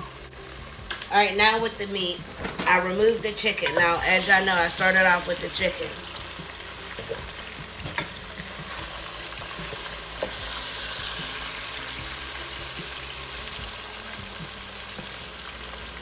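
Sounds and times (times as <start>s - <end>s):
chicken sizzling in hot oil: 3.7s - 16.0s.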